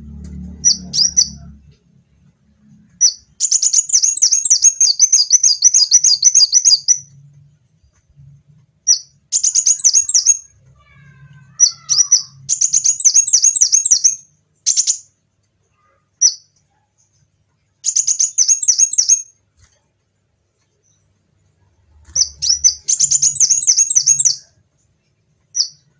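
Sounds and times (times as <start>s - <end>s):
sunbird trilling song: 0.5s - 1.6s, 3.0s - 7.1s, 8.9s - 10.9s, 11.5s - 15.1s, 17.8s - 19.3s, 22.1s - 24.6s, 25.5s - 25.9s.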